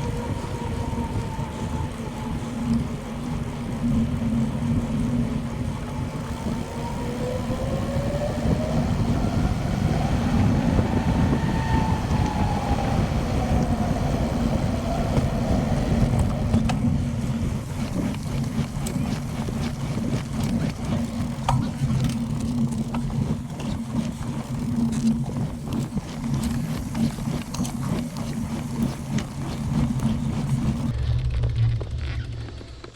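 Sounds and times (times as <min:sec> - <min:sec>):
wind rushing over microphone: 0:00.0 - 0:31.6.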